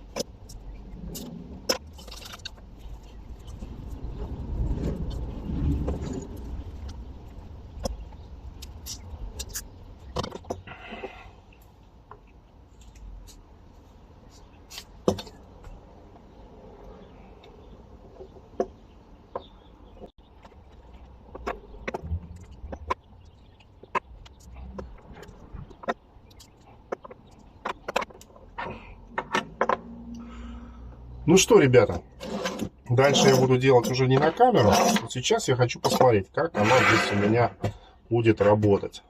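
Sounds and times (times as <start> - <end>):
small objects clicking and knocking: 0.0 - 4.0
low rumble: 0.0 - 10.1, 20.8 - 25.8
scraping rustle: 31.9 - 35.3, 36.0 - 37.7.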